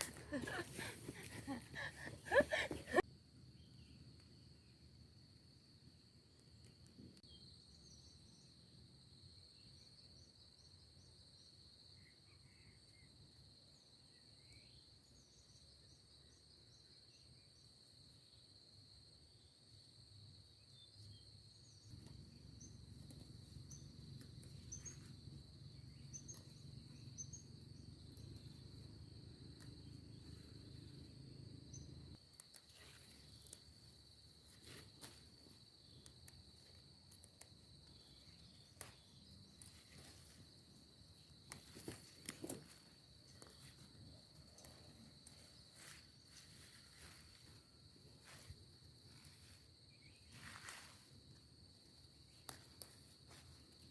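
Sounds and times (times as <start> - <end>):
insects droning: 0.0 - 53.9
bird chirps: 23.6 - 28.6.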